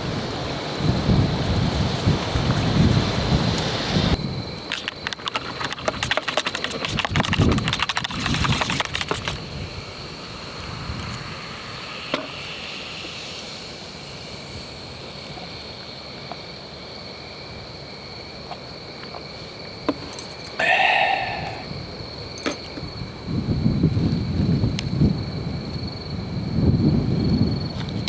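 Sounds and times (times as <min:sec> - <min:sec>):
insect trilling: 0:04.2 - 0:22.4.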